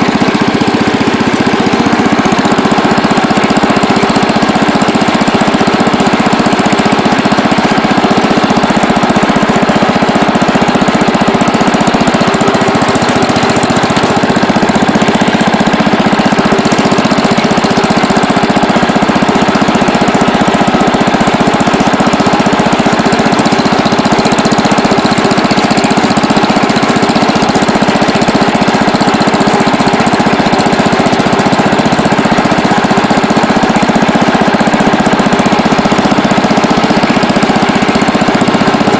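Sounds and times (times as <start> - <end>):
small tractor engine running: 0.0 - 38.9.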